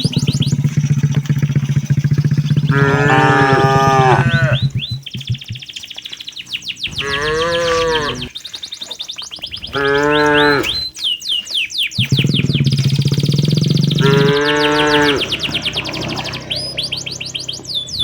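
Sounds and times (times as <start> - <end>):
cattle mooing: 2.4 - 4.8, 6.9 - 8.3, 9.7 - 10.9, 13.5 - 16.8.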